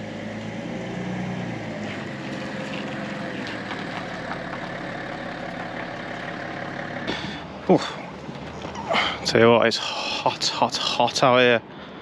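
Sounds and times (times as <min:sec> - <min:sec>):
car engine at low revs: 0:00.0 - 0:09.5.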